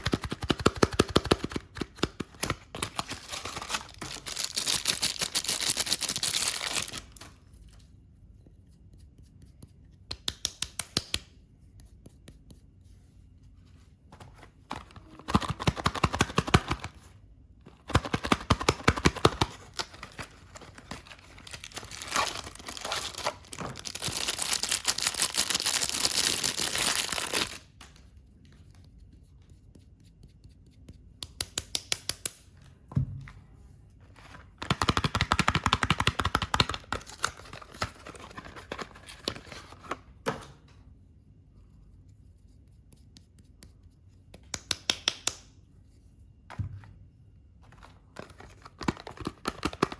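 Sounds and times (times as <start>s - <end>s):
packaging crinkling: 2.4s - 7.4s, 18.0s - 27.7s
wrapping tearing: 2.9s - 7.4s, 19.0s - 27.7s.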